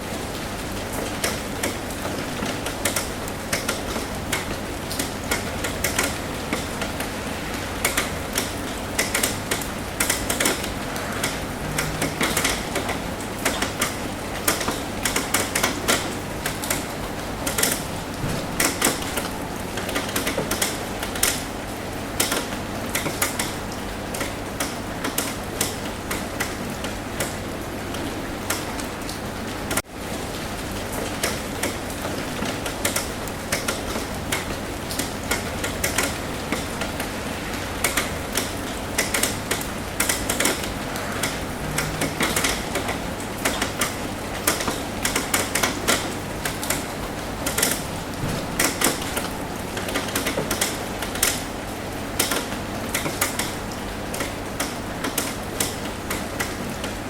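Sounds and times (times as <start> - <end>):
rain drips tapping on roof: 0.0 - 57.0
steady hiss of rain: 0.0 - 57.0.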